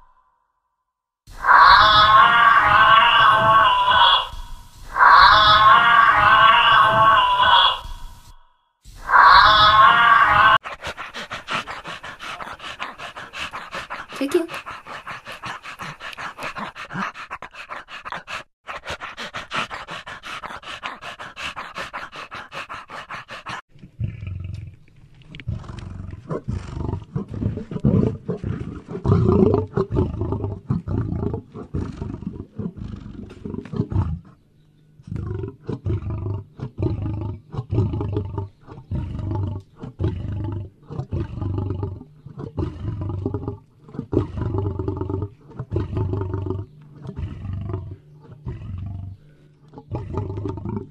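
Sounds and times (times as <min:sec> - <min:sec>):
large animal roaring: 0:01.4 - 0:08.0, 0:09.0 - 0:10.6, 0:35.1 - 0:50.9
dog panting: 0:10.6 - 0:23.7.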